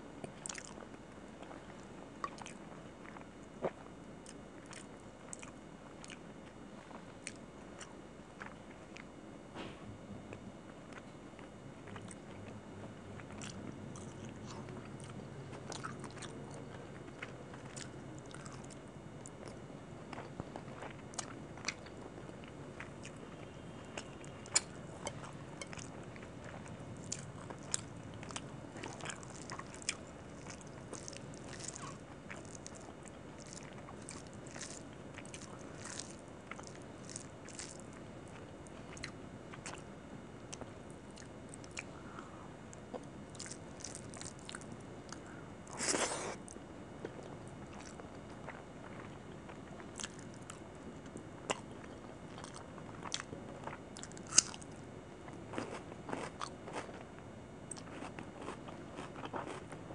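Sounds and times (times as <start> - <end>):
person chewing food: 0.3 - 9.1, 10.3 - 12.5, 13.2 - 59.9.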